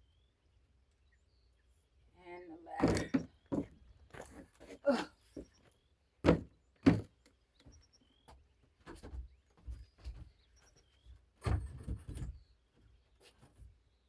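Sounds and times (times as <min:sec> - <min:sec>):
ladder rattling thump: 0:06.2 - 0:07.1.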